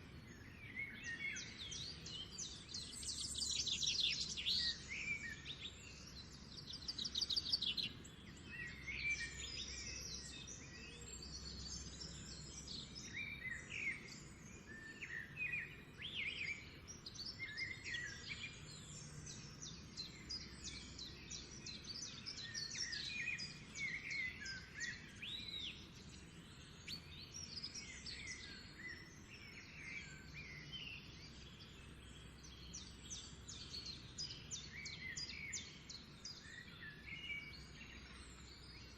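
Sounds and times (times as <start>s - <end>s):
songbirds chirping and singing: 0.0s - 38.9s.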